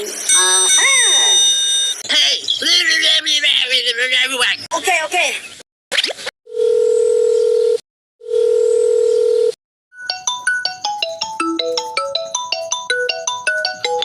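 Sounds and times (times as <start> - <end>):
electronic ringtone melody: 0.0 - 2.0, 9.9 - 14.0
long electronic beeps: 0.0 - 2.0.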